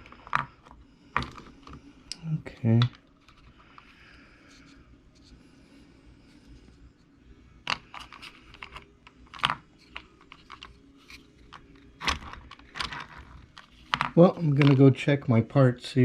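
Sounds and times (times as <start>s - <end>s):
small parts clicking and tapping: 0.0s - 3.9s, 7.6s - 14.9s.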